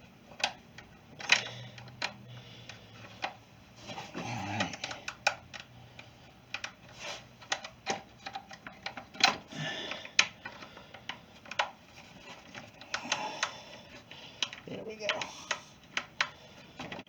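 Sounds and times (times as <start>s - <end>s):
plastic parts clicking and knocking: 0.0s - 17.0s.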